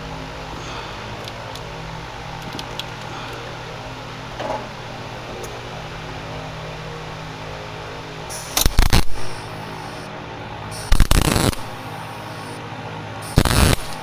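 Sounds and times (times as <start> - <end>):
steady low hum: 0.0 - 14.0
welding arc crackling: 8.2 - 12.6, 13.2 - 14.0.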